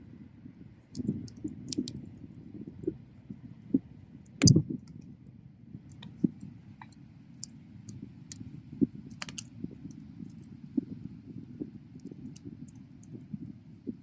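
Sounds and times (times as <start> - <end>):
bonfire crackling: 9.0 - 10.5.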